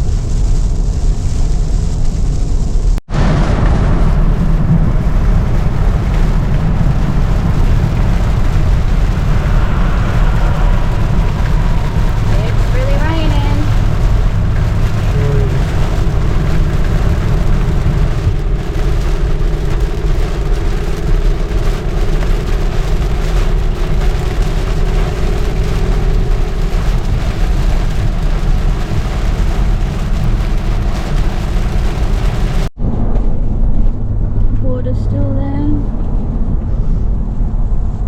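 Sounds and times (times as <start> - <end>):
engine and tyres rumbling: 0.0 - 38.0
steady hum: 3.1 - 38.0
broad road hiss: 4.1 - 32.7.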